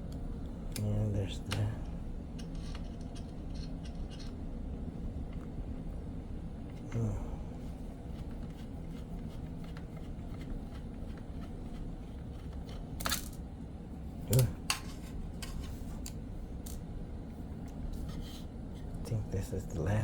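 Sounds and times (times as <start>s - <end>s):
steady low hum: 0.0s - 20.0s
screwdriver clicks and scrapes: 2.4s - 4.4s.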